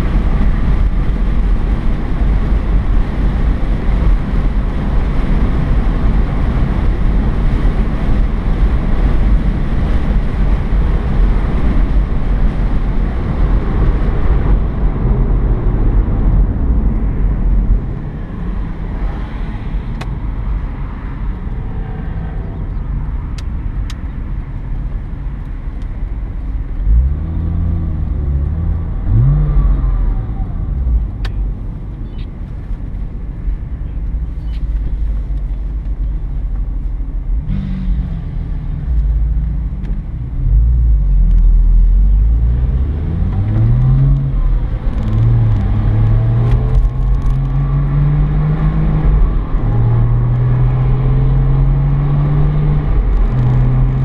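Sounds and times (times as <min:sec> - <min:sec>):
road and wind noise: 0:00.0 - 0:54.0
car engine revving: 0:26.7 - 0:31.6, 0:37.4 - 0:54.0.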